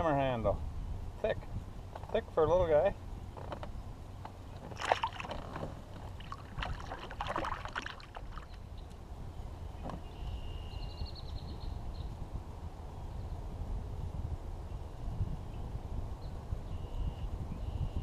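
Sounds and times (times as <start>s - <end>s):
low steady rumble: 0.0s - 18.0s
kayak knocks and rattles: 3.3s - 8.6s
water splashing: 4.5s - 8.6s.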